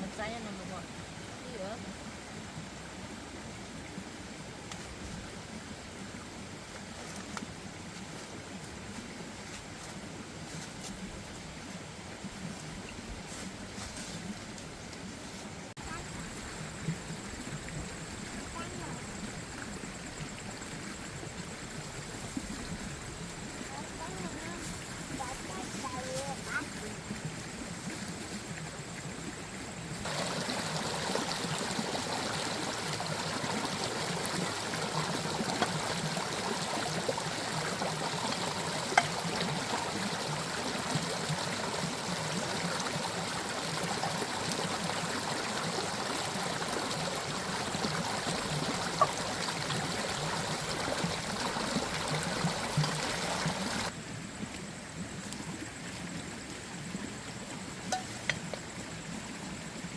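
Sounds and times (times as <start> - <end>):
water running: 30.0 - 53.9, 57.7 - 58.8.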